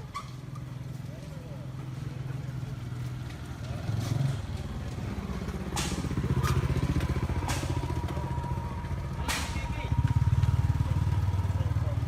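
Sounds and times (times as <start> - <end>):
small engine running: 3.4 - 12.0.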